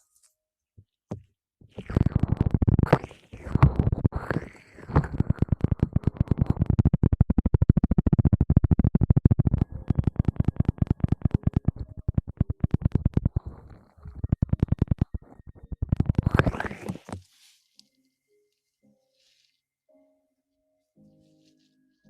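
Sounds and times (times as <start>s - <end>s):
fast scratching strokes: 1.7s - 17.6s.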